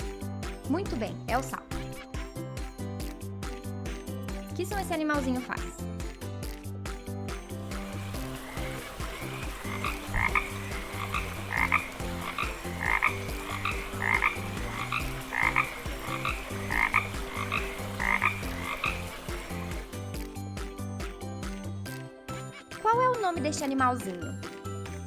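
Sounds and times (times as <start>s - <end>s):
frog croaking: 7.7s - 20.0s.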